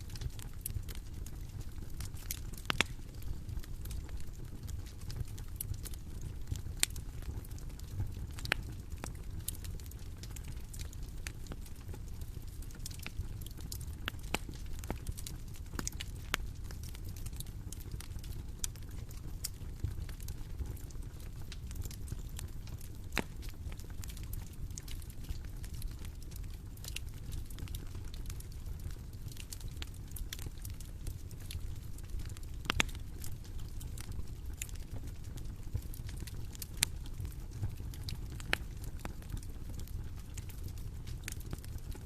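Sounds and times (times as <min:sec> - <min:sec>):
burning wood crackling: 0:00.0 - 0:42.0
fire low rumble: 0:00.0 - 0:42.0.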